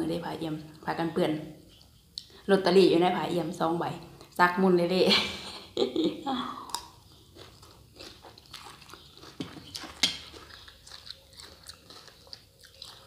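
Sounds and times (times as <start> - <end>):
person chewing crunchy food: 6.6 - 13.0.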